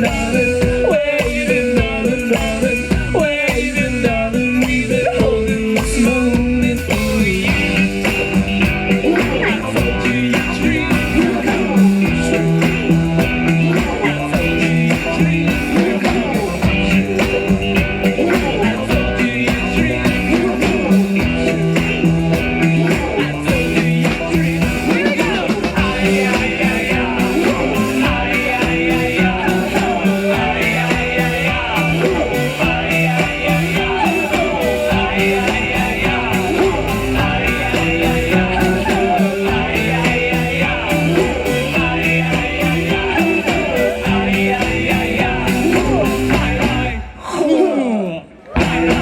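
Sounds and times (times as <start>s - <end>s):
live rock band playing: 0.0s - 47.1s, 48.6s - 49.0s.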